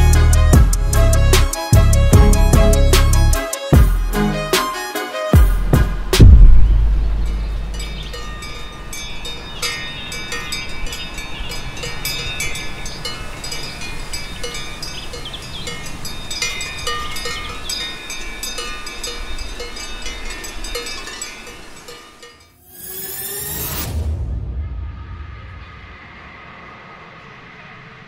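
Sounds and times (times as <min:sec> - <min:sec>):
livestock bells clanking: 0:07.3 - 0:22.6.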